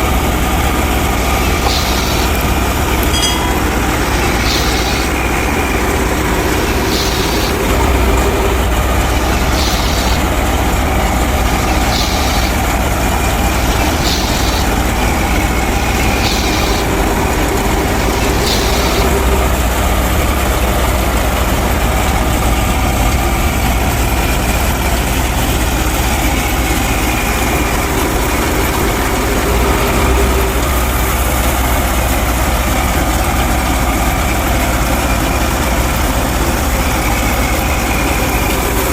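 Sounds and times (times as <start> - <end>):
engine droning: 0.0 - 38.9
short high hiss: 1.5 - 2.4, 3.3 - 10.3, 11.6 - 12.7, 13.7 - 17.2, 17.8 - 19.4.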